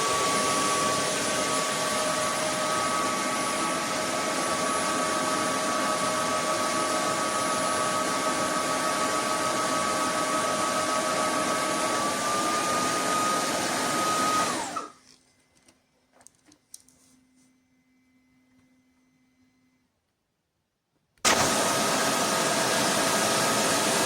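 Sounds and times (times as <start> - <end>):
vacuum motor whining: 0.0 - 15.0, 21.3 - 24.0.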